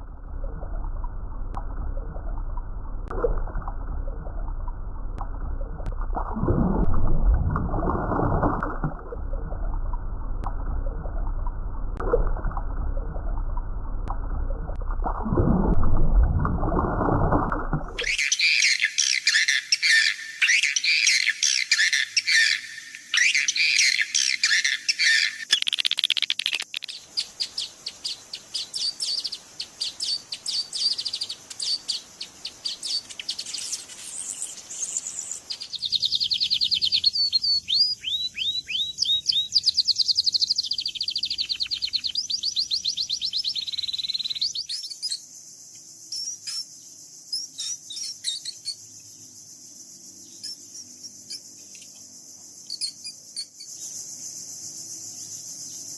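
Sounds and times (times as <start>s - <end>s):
fast trilled bird phrases: 18.0s - 45.2s
songbirds chirping: 26.6s - 55.9s.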